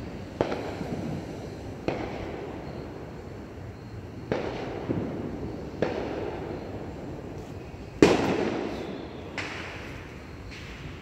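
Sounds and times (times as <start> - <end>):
fireworks bangs: 0.0 - 3.2, 3.8 - 11.0.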